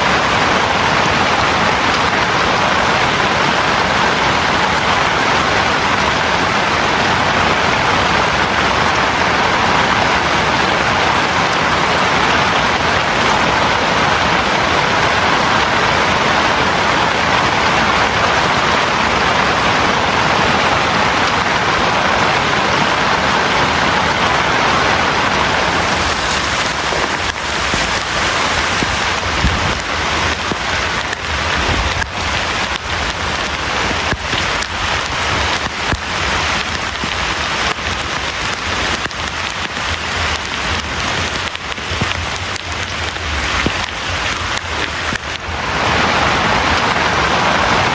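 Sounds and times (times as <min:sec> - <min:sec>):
heavy rain hissing: 0:00.0 - 0:47.9.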